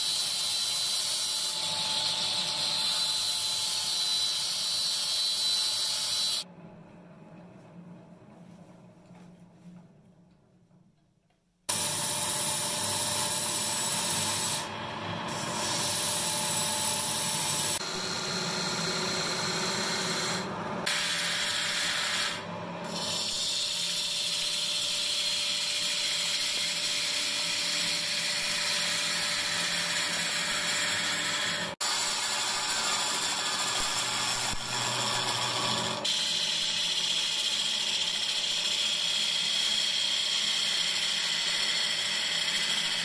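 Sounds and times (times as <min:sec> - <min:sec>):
power saw cutting wood: 0:11.7 - 0:43.0.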